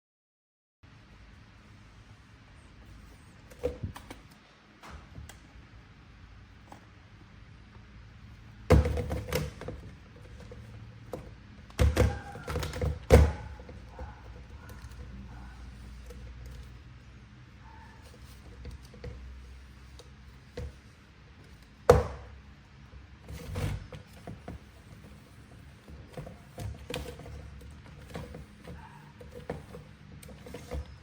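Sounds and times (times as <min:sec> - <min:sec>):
scraping and rustling: 0:22.8 - 0:31.0
cardboard and plastic handling: 0:23.0 - 0:31.0.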